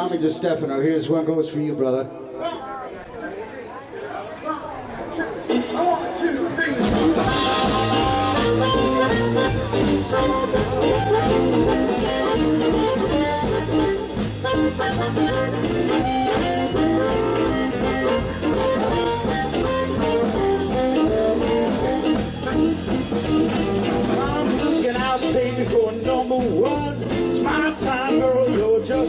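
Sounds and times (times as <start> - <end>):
electric guitar playing blues: 5.1 - 29.0
drum kit steady beat: 5.8 - 29.0.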